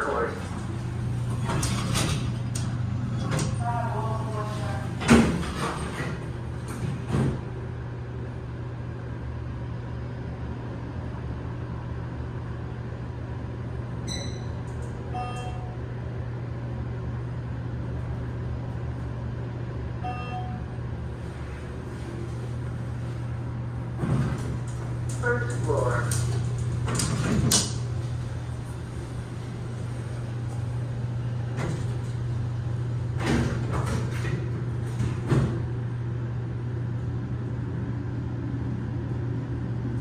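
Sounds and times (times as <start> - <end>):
elevator door sliding open: 0.0 - 7.6, 21.1 - 35.8
elevator humming: 0.0 - 40.0
elevator door thudding shut: 0.4 - 7.6, 23.8 - 35.7
short electronic beeps: 15.1 - 15.8, 20.0 - 20.6.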